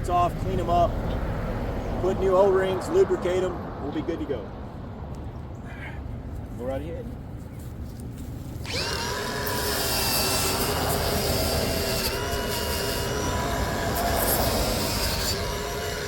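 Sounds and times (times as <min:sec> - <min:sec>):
angle grinder whining: 0:08.6 - 0:16.0.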